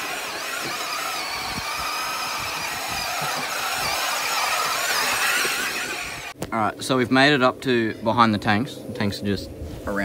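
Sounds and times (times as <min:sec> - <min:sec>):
electric motors whining: 0:00.0 - 0:06.4.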